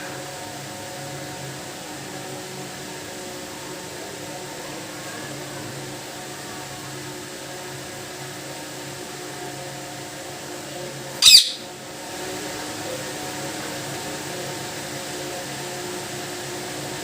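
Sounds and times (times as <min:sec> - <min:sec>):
steady background hum: 0:00.0 - 0:17.0
parrot squawk: 0:11.2 - 0:11.7.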